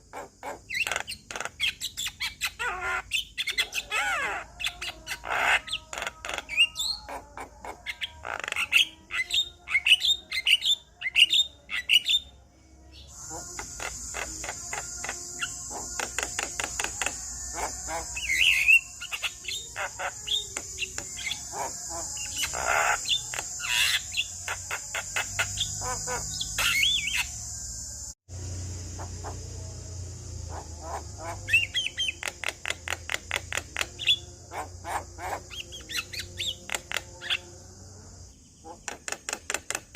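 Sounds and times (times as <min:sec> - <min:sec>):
bird singing clicks and whistles: 0:31.6 - 0:34.2, 0:38.8 - 0:39.9.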